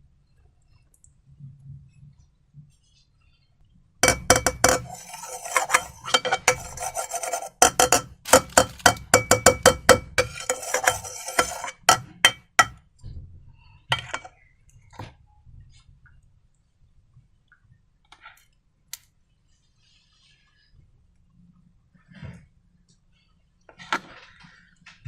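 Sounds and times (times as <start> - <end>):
utensil stirring slime in a bowl: 4.0 - 12.8, 14.0 - 14.3.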